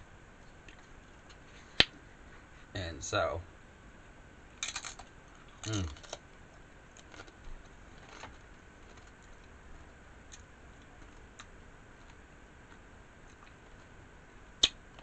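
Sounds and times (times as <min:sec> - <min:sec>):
man chewing food: 0:04.7 - 0:15.0.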